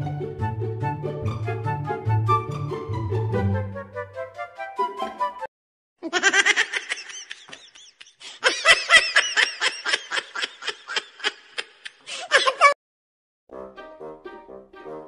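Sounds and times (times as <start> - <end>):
high-pitched laughter: 6.0 - 12.8.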